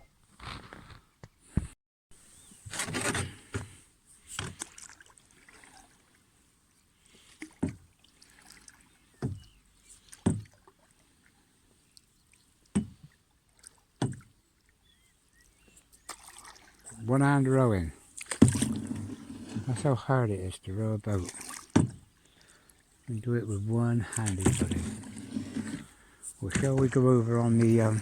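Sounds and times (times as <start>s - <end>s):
oar blade splashing: 2.7s - 6.0s, 7.2s - 11.0s, 12.6s - 14.3s, 16.0s - 20.0s, 21.1s - 28.0s
oar knocking in rowlock: 21.7s - 22.1s, 24.1s - 25.8s.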